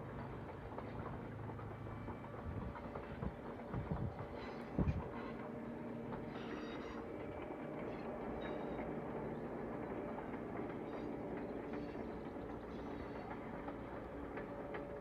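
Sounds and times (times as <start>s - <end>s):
diesel locomotive hum: 0.0s - 15.0s
faint high-pitched squeals: 4.2s - 15.0s.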